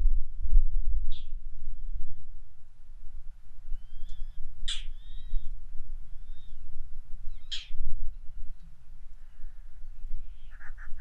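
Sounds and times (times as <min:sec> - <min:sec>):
low rumble: 0:00.0 - 0:11.0
thin whistled bird notes: 0:03.7 - 0:06.7, 0:07.3 - 0:08.3
harsh bird calls: 0:10.2 - 0:11.0.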